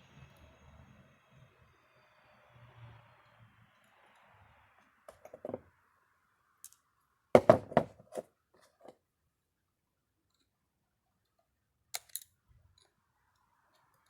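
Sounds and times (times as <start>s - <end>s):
small metal parts knocking and clicking: 12.0s - 12.9s.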